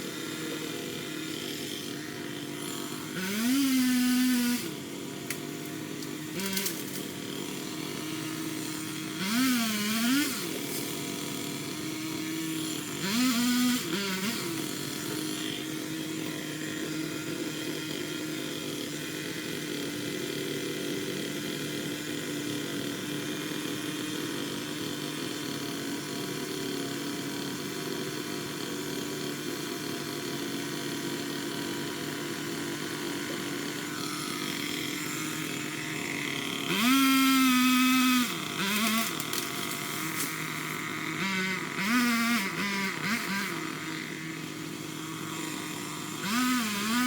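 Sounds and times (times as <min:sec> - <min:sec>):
small two-stroke engine idling: 0:10.4 - 0:47.0.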